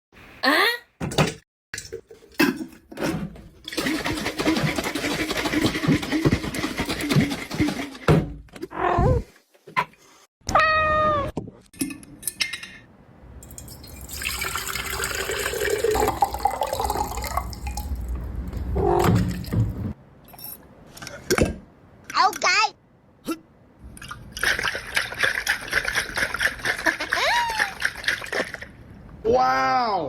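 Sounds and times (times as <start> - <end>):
cat meowing: 10.5 - 11.4.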